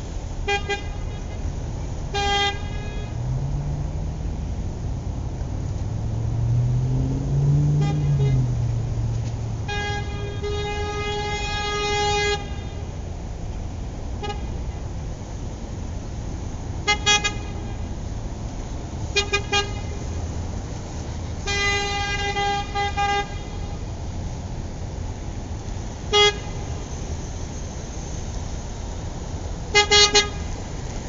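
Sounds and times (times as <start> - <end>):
car horn honking: 0.4 - 1.4, 2.1 - 3.3, 7.7 - 8.8, 9.6 - 12.9, 14.2 - 14.8, 16.8 - 17.9, 19.1 - 20.0, 21.4 - 23.8, 26.1 - 26.8, 29.7 - 30.5.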